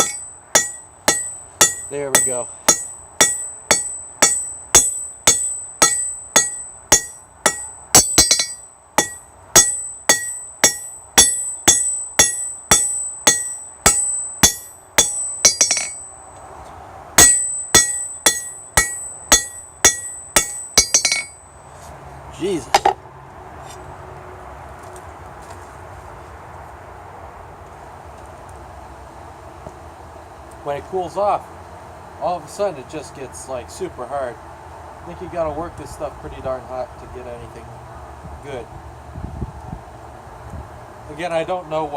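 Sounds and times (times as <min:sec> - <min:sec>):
hammer ringing on anvil: 0:00.0 - 0:16.3, 0:17.2 - 0:21.5.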